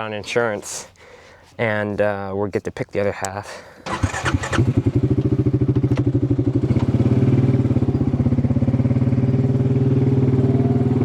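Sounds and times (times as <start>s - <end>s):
farm vehicle engine running: 3.9s - 11.0s.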